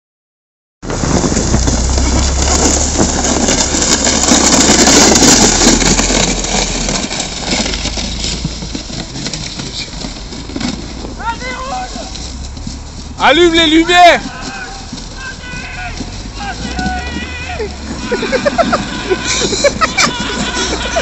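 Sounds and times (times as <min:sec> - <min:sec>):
loud rushing noise: 0:00.8 - 0:08.2
car engine running: 0:00.9 - 0:21.0.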